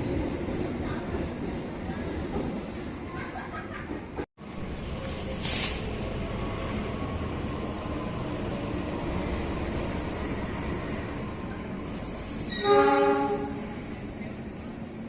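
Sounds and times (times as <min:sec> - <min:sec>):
train rumbling: 0:00.0 - 0:15.0
brief hiss: 0:05.0 - 0:05.9
train horn: 0:12.5 - 0:13.8.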